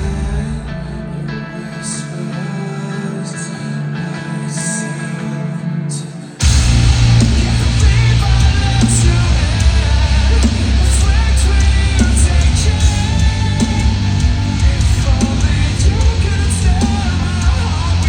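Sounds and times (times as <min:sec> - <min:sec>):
drums: 0:00.0 - 0:02.2, 0:06.4 - 0:18.0
distorted guitars: 0:00.0 - 0:18.0
person singing: 0:00.0 - 0:18.0
heavy bass: 0:06.4 - 0:18.0.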